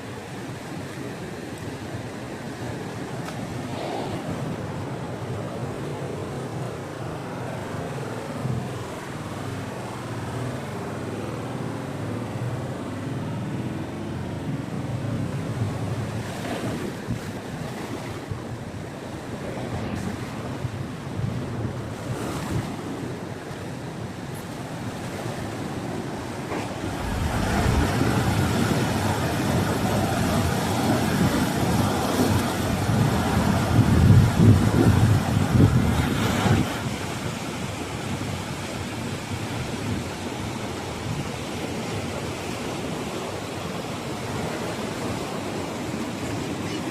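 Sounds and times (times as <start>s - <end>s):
ocean surf on beach: 0.0s - 46.9s
wind on microphone: 3.3s - 7.0s, 15.0s - 41.4s.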